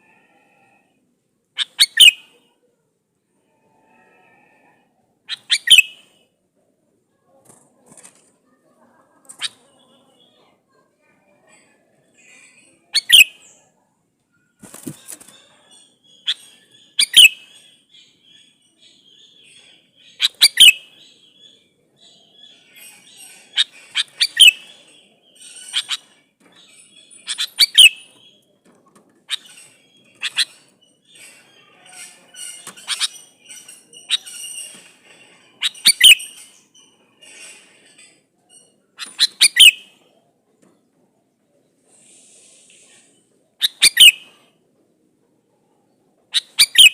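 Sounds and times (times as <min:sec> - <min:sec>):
bulbul calling: 0:01.6 - 0:02.2, 0:05.3 - 0:06.0, 0:39.0 - 0:39.8, 0:43.6 - 0:44.4, 0:46.3 - 0:46.9
faint bird chirps: 0:08.4 - 0:28.6, 0:38.4 - 0:40.2, 0:41.2 - 0:44.5, 0:45.5 - 0:46.9.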